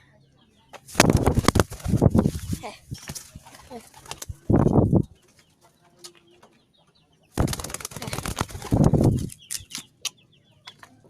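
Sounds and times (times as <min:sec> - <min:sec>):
pigeon flapping wings: 0:00.9 - 0:04.8, 0:07.4 - 0:09.4.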